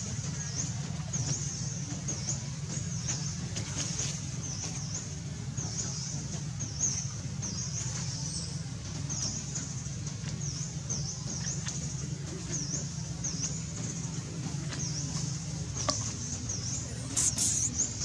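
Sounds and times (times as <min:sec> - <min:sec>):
steady low hum: 0:00.0 - 0:18.0
small bird chirping: 0:15.8 - 0:18.0.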